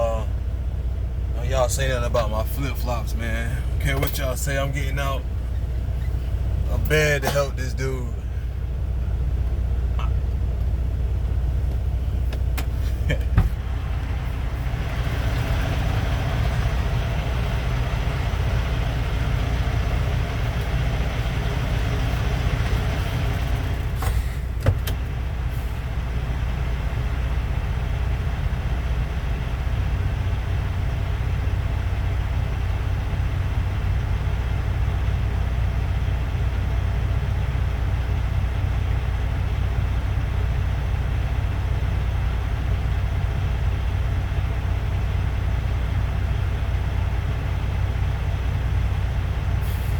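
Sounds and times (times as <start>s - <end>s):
diesel truck engine idling: 0.0s - 49.9s.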